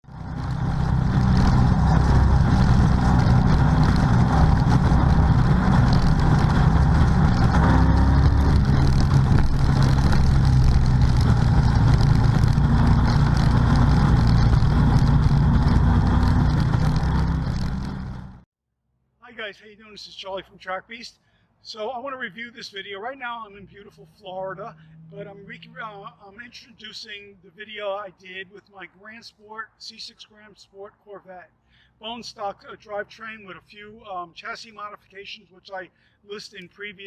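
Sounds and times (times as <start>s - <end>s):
car engine running hard: 0.0s - 18.4s
road and wind noise: 0.0s - 18.4s, 24.6s - 25.8s.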